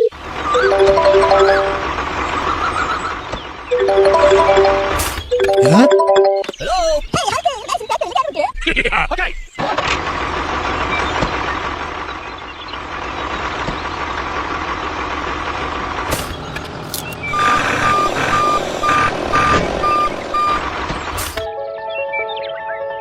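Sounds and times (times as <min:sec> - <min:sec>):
reversing alarm beeping: 0:00.4 - 0:02.0, 0:17.3 - 0:20.7
vehicle engine running: 0:09.8 - 0:21.2.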